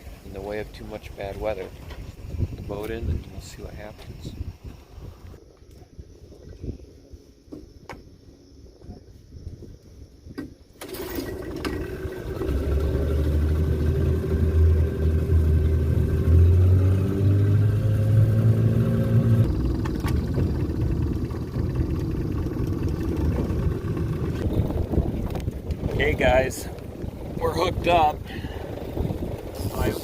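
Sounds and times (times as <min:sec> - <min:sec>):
motor engine running: 0:10.8 - 0:30.0.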